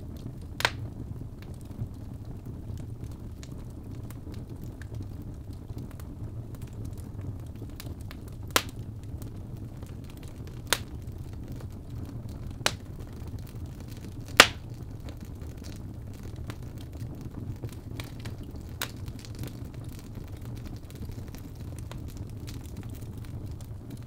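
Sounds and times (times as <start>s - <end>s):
fire crackling: 0.0s - 24.0s
low rumble of flame: 0.0s - 24.0s
sharp pops of burning logs: 0.2s - 1.7s, 7.6s - 24.0s.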